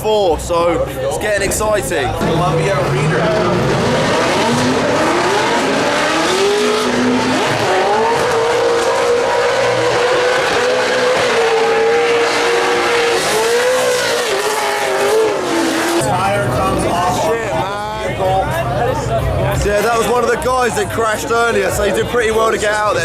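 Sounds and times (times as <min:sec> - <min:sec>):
car engine revving: 0:01.4 - 0:17.7.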